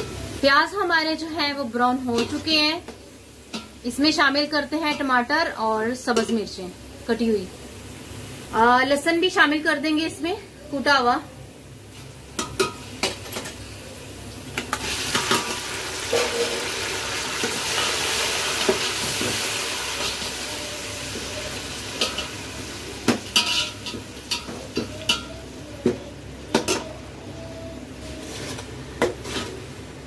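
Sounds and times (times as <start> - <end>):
vegetables sizzling in hot oil: 0.0 - 30.0
metal spatula scraping a pot: 23.3 - 25.3, 28.0 - 29.7.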